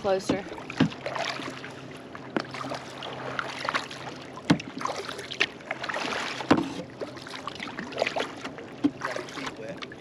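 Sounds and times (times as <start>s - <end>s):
paddle splashing in water: 0.3s - 10.0s.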